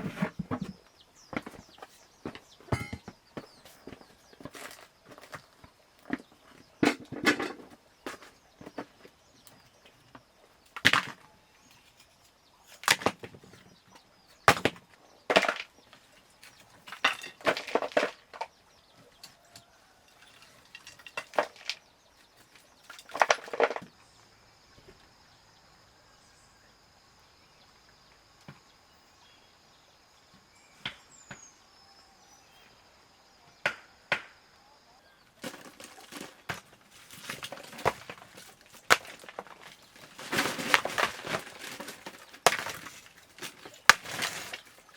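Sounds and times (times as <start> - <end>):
wooden knocks: 0.0 - 3.5
rustling clatter: 35.4 - 44.9.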